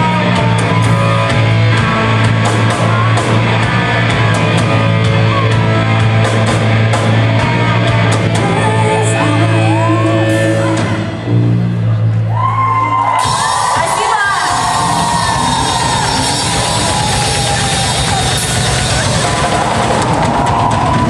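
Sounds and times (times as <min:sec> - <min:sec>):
crowd cheering and whooping: 0:00.0 - 0:06.2, 0:11.9 - 0:21.0
live rock band playing: 0:00.0 - 0:12.3, 0:13.0 - 0:21.0.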